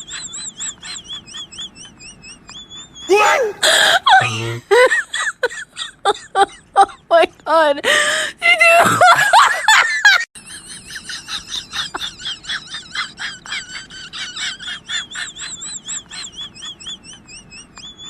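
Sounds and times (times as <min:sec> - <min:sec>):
person wailing: 0:03.1 - 0:04.7.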